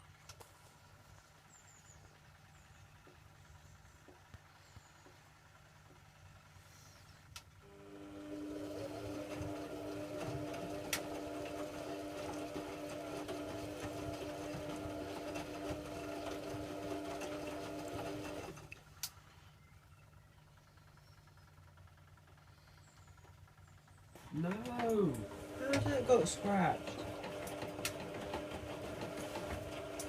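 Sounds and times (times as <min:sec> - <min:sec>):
washing machine drum motor hum: 0:07.6 - 0:18.8, 0:24.2 - 0:30.0.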